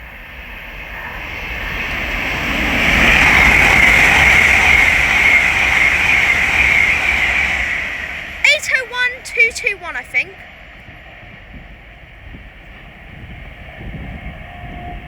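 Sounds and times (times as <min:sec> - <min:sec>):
electric train passing: 0:00.8 - 0:09.0.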